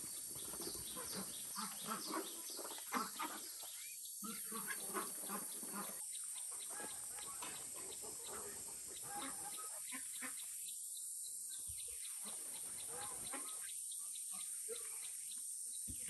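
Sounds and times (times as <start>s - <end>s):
chickens clucking: 0.0s - 3.5s, 4.3s - 10.4s.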